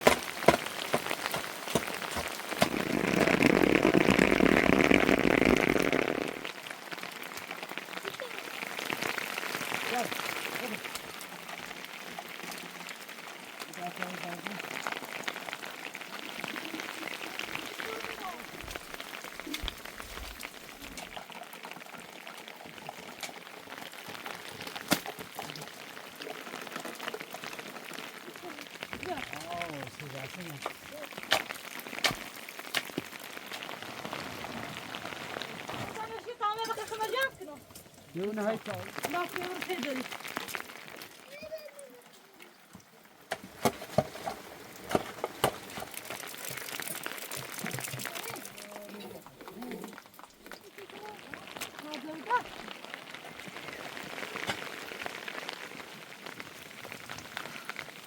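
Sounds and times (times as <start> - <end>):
drops ticking: 0.0 - 12.6, 36.0 - 41.6
rain falling: 0.0 - 58.0.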